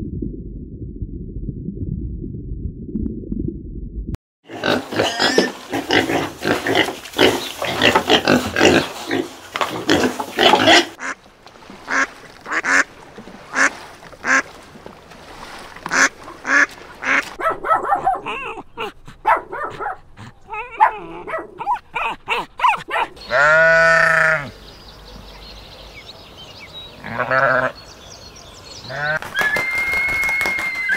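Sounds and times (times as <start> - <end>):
geese honking: 11.9 - 12.9, 13.5 - 14.5, 15.9 - 17.4, 23.2 - 24.5
sheep bleating: 23.3 - 24.5, 27.0 - 27.7.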